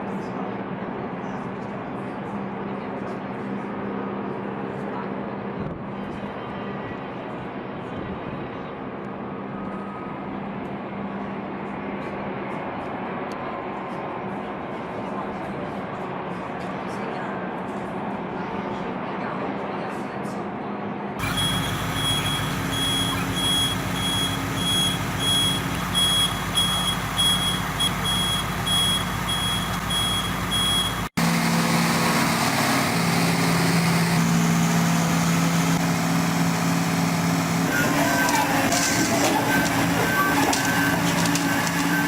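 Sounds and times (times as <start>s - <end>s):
low-pitched reversing beeper: 21.2s - 31.1s
reversing alarm beeping: 21.2s - 31.1s, 37.7s - 42.0s
heavy diesel engine running: 21.2s - 42.0s.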